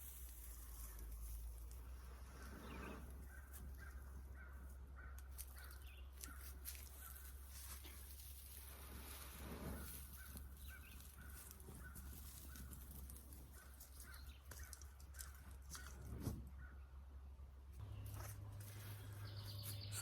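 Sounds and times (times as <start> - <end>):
crows cawing: 3.4 - 7.2.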